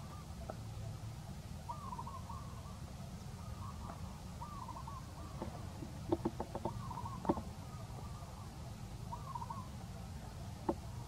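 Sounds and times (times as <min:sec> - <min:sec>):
bird calling wavering notes: 0:01.6 - 0:09.8.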